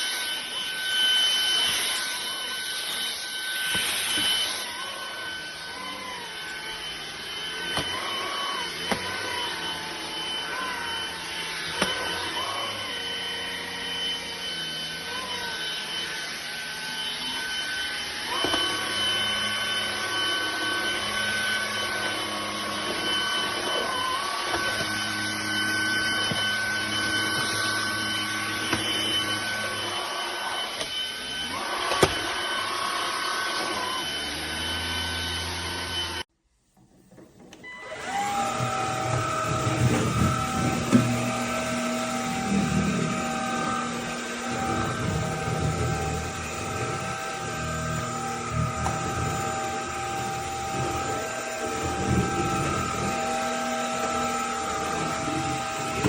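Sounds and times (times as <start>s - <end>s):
vacuum cleaner motor whine: 0.0s - 56.0s.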